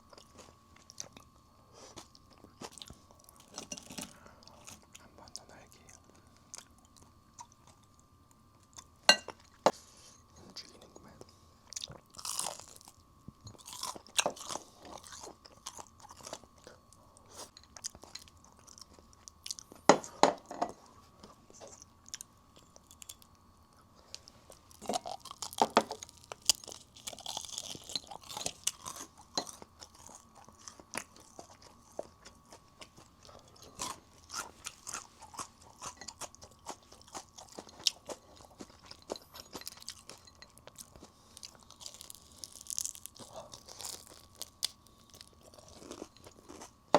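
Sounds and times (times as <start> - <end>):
crunching and chewing fried chicken: 0.0 - 46.9.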